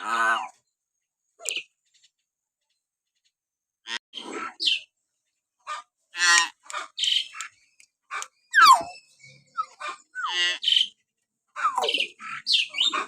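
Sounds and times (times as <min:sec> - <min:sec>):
myna bird whistles and calls: 0:08.4 - 0:11.0, 0:11.6 - 0:13.0.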